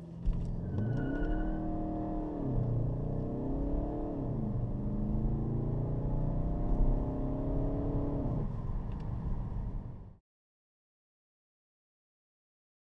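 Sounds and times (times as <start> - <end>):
car engine accelerating: 0.0 - 8.6.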